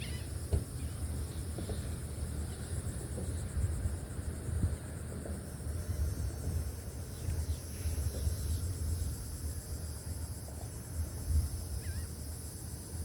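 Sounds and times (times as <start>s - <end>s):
insect trilling: 11.8s - 12.1s.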